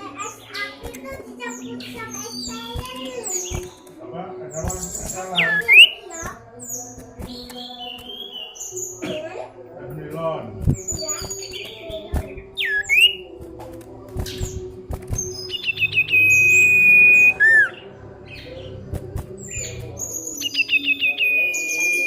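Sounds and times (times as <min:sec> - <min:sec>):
bird whistled chirps: 0:04.7 - 0:06.0, 0:12.6 - 0:13.2, 0:15.3 - 0:17.8, 0:19.5 - 0:22.0.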